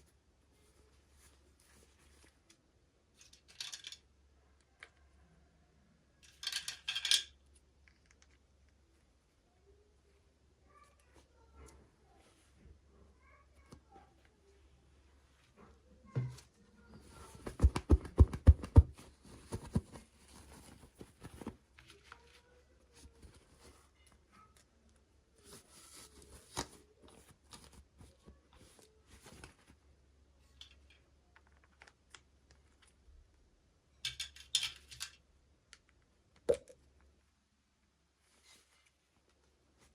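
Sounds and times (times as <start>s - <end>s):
plastic toy pieces clicking: 6.2s - 8.4s.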